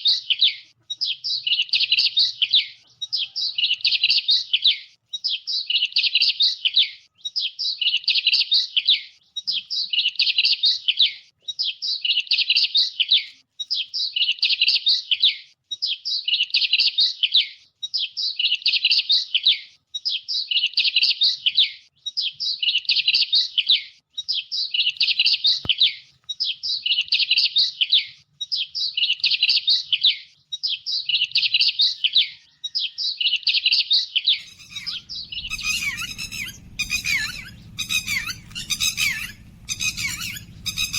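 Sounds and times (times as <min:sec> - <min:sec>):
harsh bird calls: 0:34.2 - 0:40.9
songbird warbling: 0:34.3 - 0:40.9.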